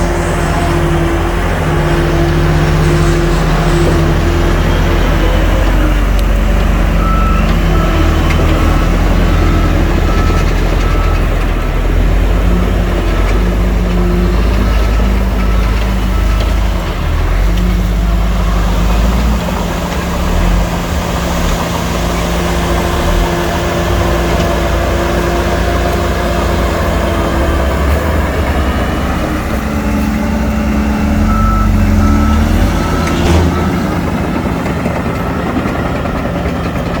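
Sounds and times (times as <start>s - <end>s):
heavy diesel engines running: 0.0s - 37.0s
reversing alarm beeps: 6.9s - 11.3s, 30.6s - 36.1s.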